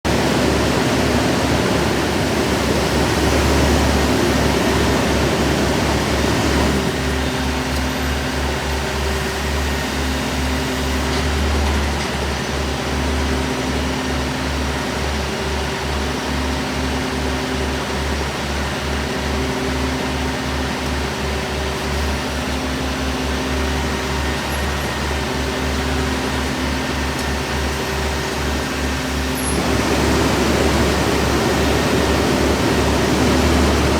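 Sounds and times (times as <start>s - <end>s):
garbage truck engine rumbling: 0.0s - 33.9s
alternating low hum tones: 21.7s - 33.9s.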